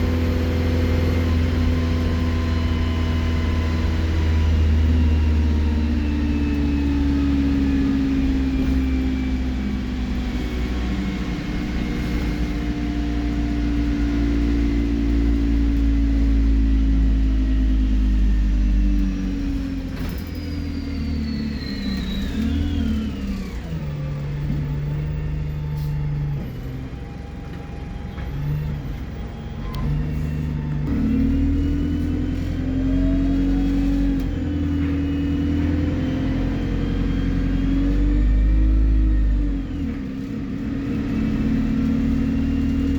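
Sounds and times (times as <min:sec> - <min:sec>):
bus engine running under load: 0:00.0 - 0:42.9
high turbocharger whistle: 0:19.4 - 0:23.8.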